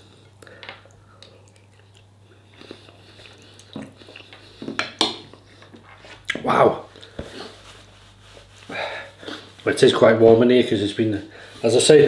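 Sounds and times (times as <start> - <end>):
man chewing food: 0.0 - 7.5.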